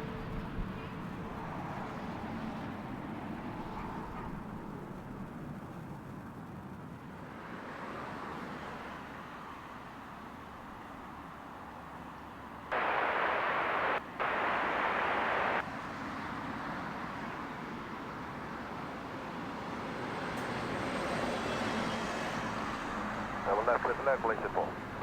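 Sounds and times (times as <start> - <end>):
jet airliner rushing: 12.7 - 15.6.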